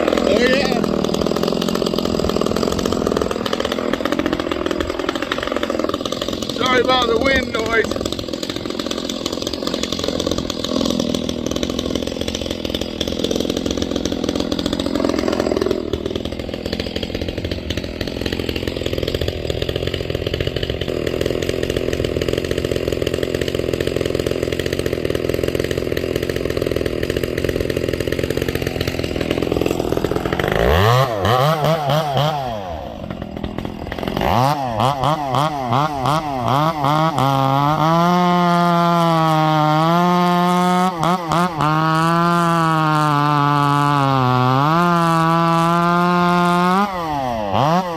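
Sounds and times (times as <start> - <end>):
chainsaw running and revving: 0.0 - 47.9.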